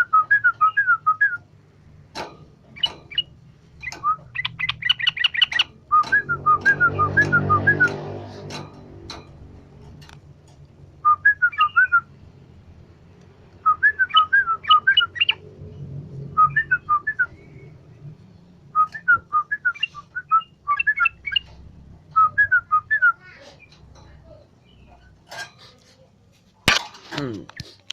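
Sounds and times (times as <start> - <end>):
bird singing whistled notes: 2.8 - 8.0, 11.0 - 12.1, 13.6 - 15.4, 16.3 - 17.9, 18.7 - 21.5, 22.1 - 23.2.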